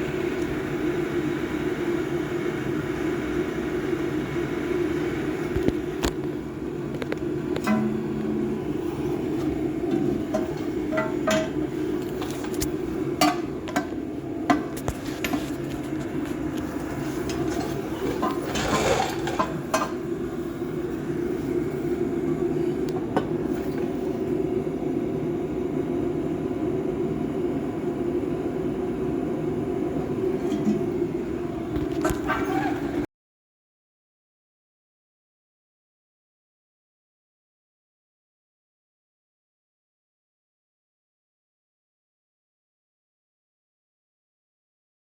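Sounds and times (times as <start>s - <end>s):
steady low hum: 0.0s - 33.1s.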